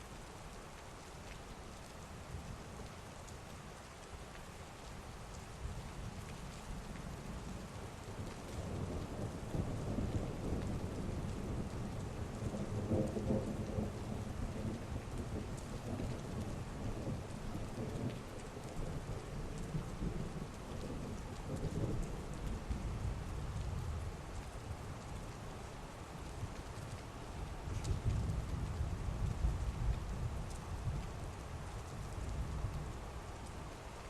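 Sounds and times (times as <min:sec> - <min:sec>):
heavy rain falling: 0:00.0 - 0:34.0.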